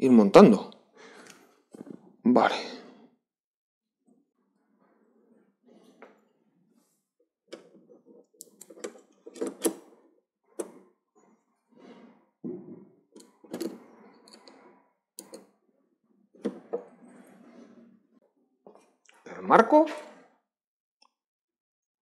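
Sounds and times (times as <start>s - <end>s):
rustling and scraping: 1.1s - 3.2s, 4.1s - 19.0s.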